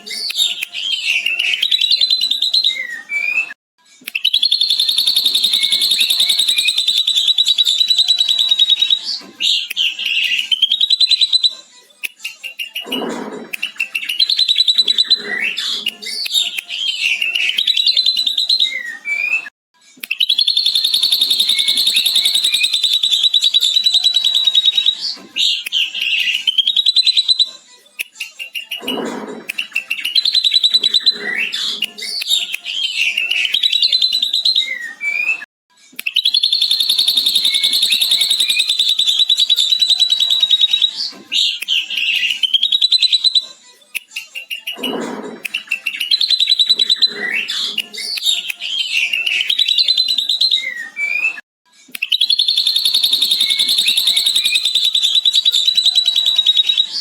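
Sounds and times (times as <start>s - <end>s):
bird singing chattering trills: 4.3s - 9.0s, 20.3s - 25.0s, 36.2s - 40.9s, 52.2s - 57.0s.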